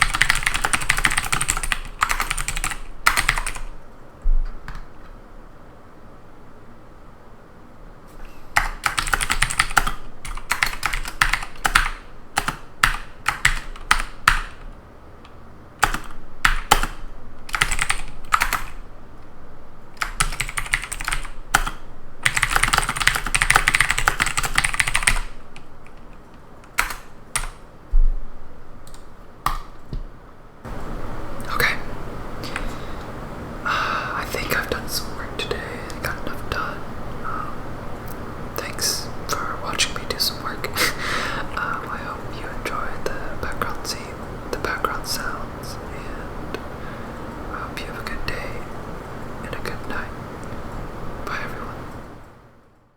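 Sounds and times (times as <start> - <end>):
typing on keyboard: 0.0 - 3.7, 8.6 - 14.7, 15.8 - 18.8, 20.0 - 27.6.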